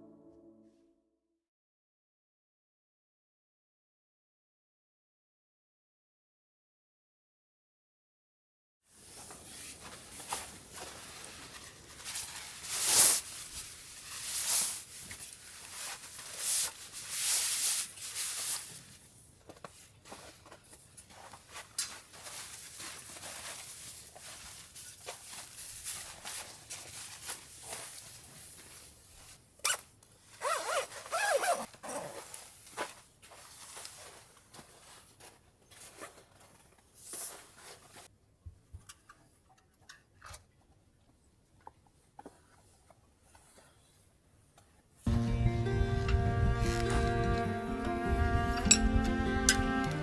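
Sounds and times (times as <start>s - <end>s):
synthetic fabric rustling: 9.0s - 20.5s, 21.1s - 35.2s.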